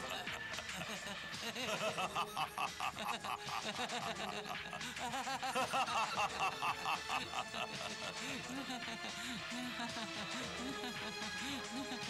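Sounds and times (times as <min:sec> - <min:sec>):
man laughing: 0:00.0 - 0:09.6
background music: 0:00.0 - 0:12.0.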